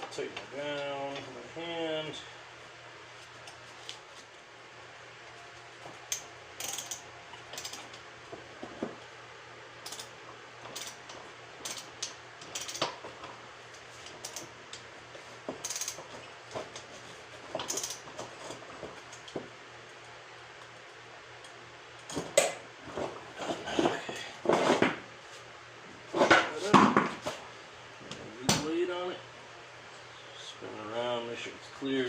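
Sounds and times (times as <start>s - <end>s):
ratchet wrench clicking: 6.1s - 7.9s, 9.8s - 10.1s, 10.7s - 11.0s, 11.6s - 12.9s, 14.2s - 14.5s, 15.6s - 16.0s, 17.7s - 18.0s.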